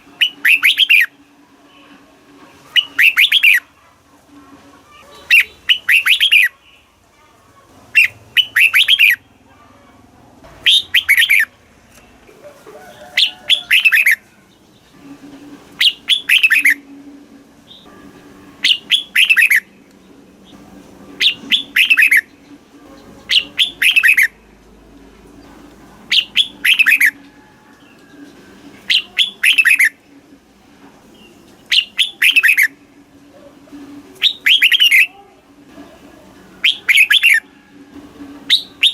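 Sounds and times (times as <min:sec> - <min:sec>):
bulbul singing: 0:00.0 - 0:01.9, 0:02.7 - 0:03.7, 0:05.2 - 0:06.9, 0:07.9 - 0:09.5, 0:10.6 - 0:12.1, 0:13.1 - 0:15.2, 0:15.8 - 0:17.0, 0:17.6 - 0:25.5, 0:26.1 - 0:30.2, 0:31.0 - 0:33.0, 0:33.9 - 0:35.2, 0:36.4 - 0:37.6, 0:38.2 - 0:38.9.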